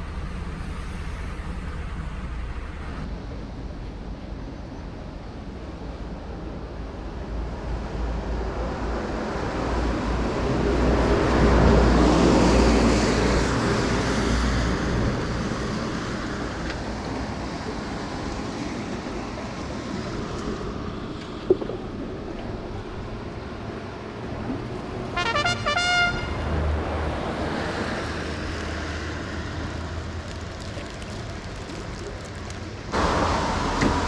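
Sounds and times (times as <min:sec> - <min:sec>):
rushing noise: 0:00.0 - 0:03.2, 0:10.2 - 0:16.4, 0:33.0 - 0:34.0
wind rumble on microphone: 0:06.3 - 0:25.2.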